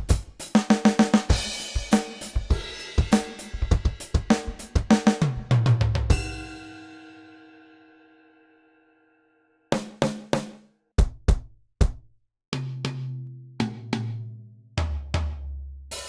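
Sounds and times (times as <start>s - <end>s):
drum kit beat: 0.0s - 6.8s, 9.7s - 14.2s, 14.8s - 16.0s
cymbal hit ringing out: 6.1s - 7.9s.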